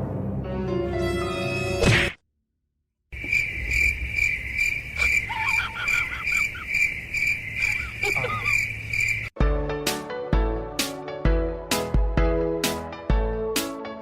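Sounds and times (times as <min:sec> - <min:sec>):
crickets chirping: 0:03.1 - 0:09.4
faint high squeaky calls: 0:04.9 - 0:09.3.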